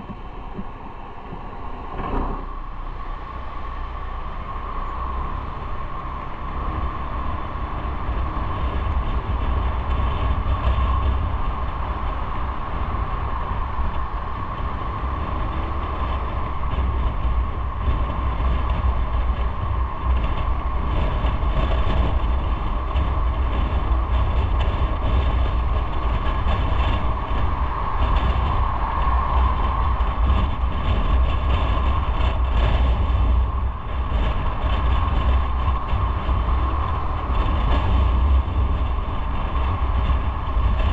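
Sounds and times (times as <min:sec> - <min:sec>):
wind and road noise: 0:00.0 - 0:40.9.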